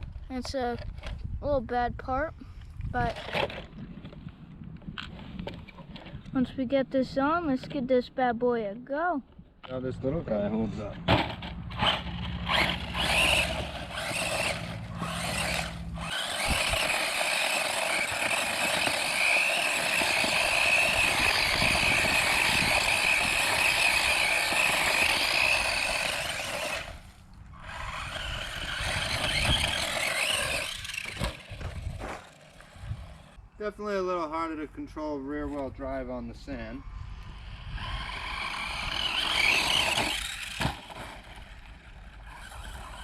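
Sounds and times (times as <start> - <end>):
electric motor whining: 10.3 - 33.4, 37.2 - 43.0
tyres scraping sand: 10.5 - 33.4.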